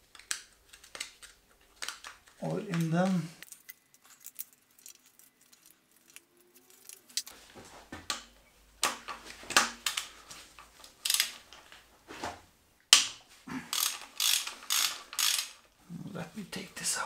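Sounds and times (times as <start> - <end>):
scrapes clicks and knocks on metal parts: 8.8 - 11.8, 13.7 - 15.7.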